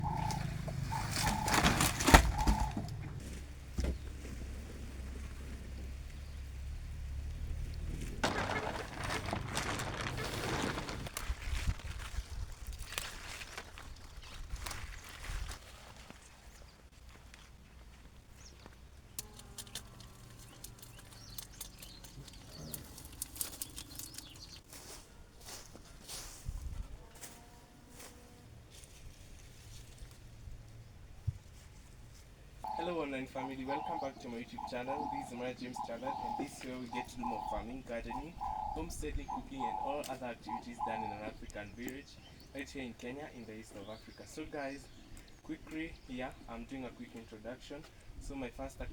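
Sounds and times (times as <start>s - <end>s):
bird calling: 0.0s - 4.1s, 32.6s - 46.6s.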